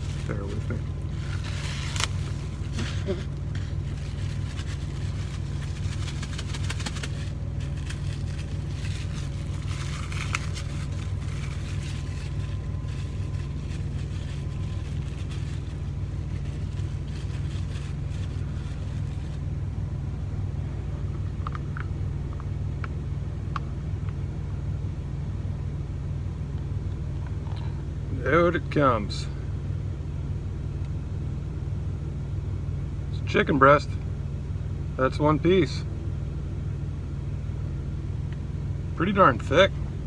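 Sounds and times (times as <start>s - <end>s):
plastic packaging crackling: 0.0s - 19.5s
engine idling: 0.0s - 40.0s.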